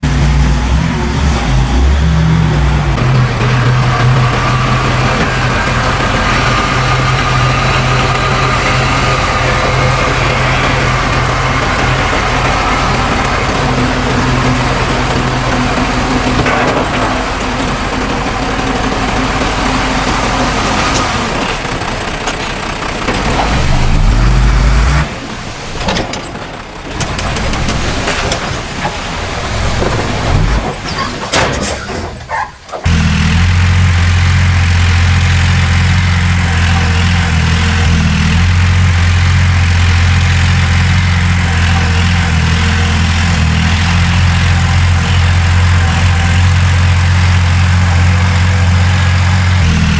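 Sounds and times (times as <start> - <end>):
engine revving: 0.0 - 30.8, 32.8 - 49.9
deep steady engine drone: 0.0 - 31.5, 32.4 - 49.9
heavy diesel engines running: 0.0 - 49.9
scattered knocks: 3.0 - 24.1.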